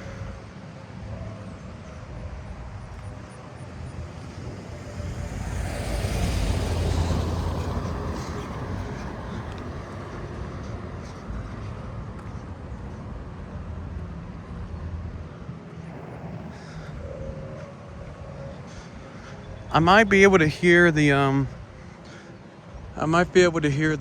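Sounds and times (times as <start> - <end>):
motor vehicle passing by: 2.6 - 20.4.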